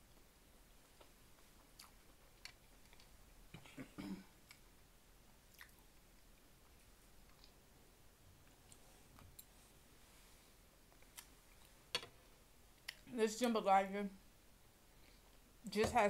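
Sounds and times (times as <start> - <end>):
faint chewing: 0.5 - 4.8, 5.4 - 7.6, 10.9 - 11.8, 12.8 - 13.1.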